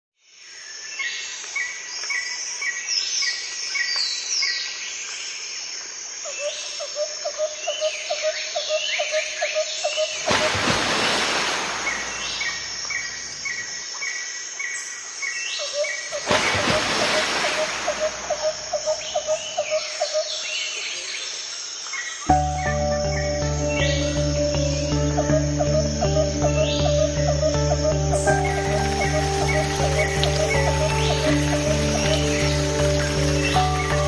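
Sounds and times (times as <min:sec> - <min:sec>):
insects buzzing: 0:04.8 - 0:34.0
birds chirping and calling: 0:15.8 - 0:20.8, 0:22.3 - 0:34.0.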